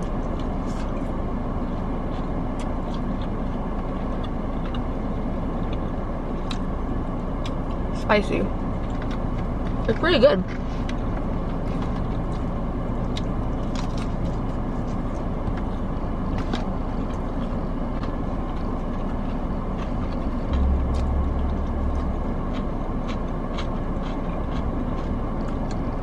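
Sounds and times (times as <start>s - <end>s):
crunchy chewing: 0.0s - 26.0s
deeper rumble: 4.0s - 26.0s
low rumble: 18.8s - 26.0s.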